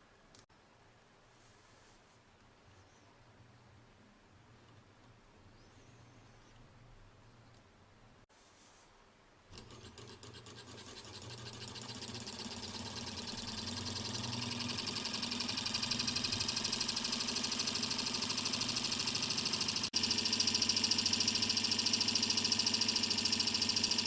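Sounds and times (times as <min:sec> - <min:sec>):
hot-air engine mechanical clatter: 0:09.5 - 0:24.0.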